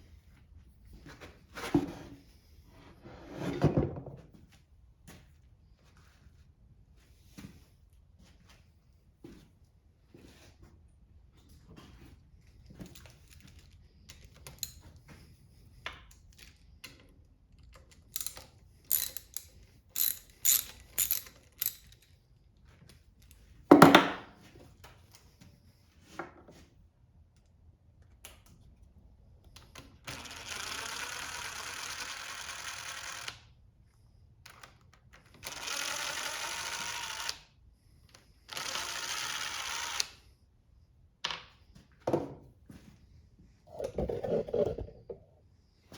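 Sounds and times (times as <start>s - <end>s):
ratchet clicks: 18.1s - 22.0s.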